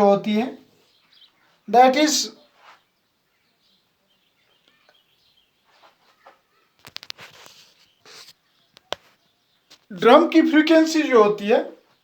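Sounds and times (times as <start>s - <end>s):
weak bird-like chirps: 0.7s - 9.9s.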